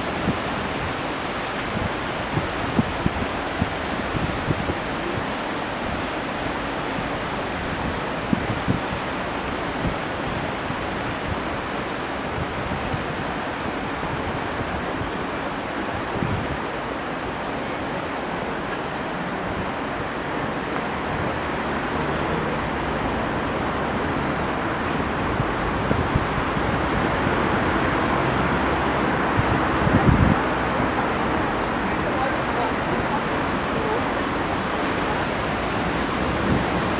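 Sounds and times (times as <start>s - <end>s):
aircraft engine and airflow: 27.1s - 36.9s.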